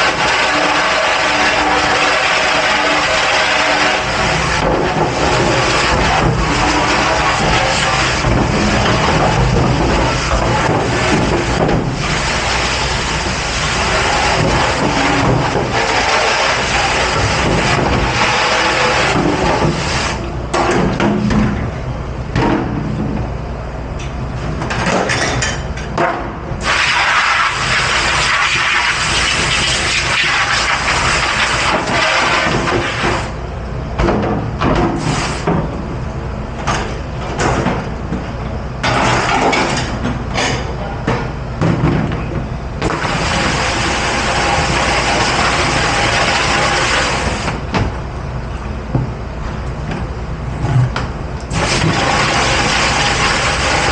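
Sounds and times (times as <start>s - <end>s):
hissing water spray: 0.0s - 8.2s, 10.1s - 20.2s, 26.6s - 33.3s, 43.0s - 47.5s, 51.5s - 53.9s
machine hum: 0.0s - 24.9s
dishes and racks clattering: 24.6s - 26.2s, 38.8s - 42.3s.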